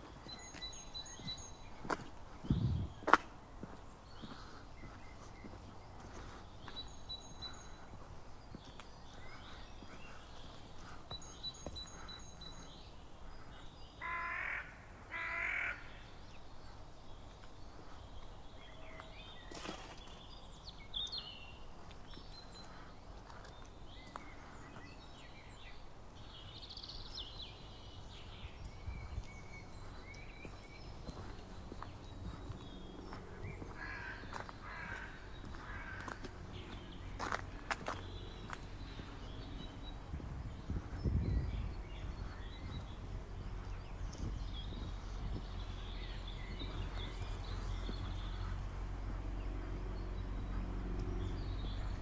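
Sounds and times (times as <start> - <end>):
small birds chirping: 0.0 - 52.0
loud crow-like bird calls: 14.0 - 16.0, 33.6 - 36.3
low background rumble: 26.2 - 52.0.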